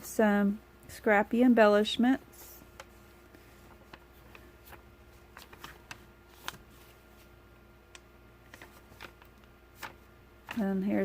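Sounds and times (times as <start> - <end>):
paper pages turning: 2.4 - 7.3, 7.9 - 11.0.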